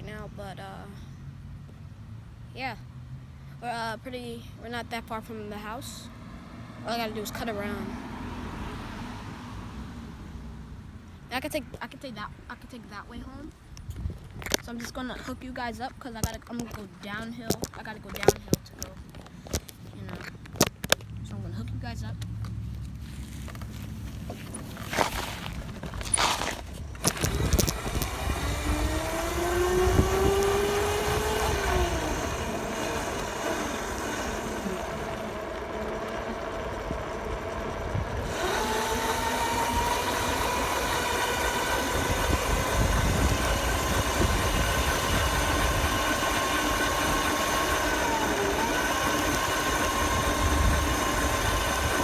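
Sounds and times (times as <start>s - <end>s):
dirt bike engine accelerating: 23.1s - 52.0s.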